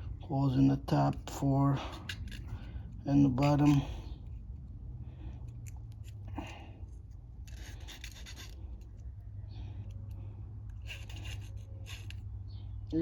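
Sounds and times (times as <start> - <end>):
steady low hum: 0.0 - 13.0
scratchy rubbing and scraping: 1.9 - 4.4, 6.9 - 9.1, 10.6 - 12.3.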